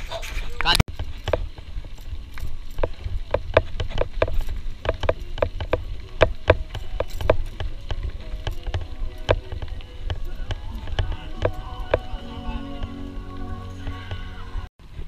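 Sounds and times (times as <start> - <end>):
low riding rumble: 0.0 - 15.0
strap and hose tapping camera: 2.3 - 12.1.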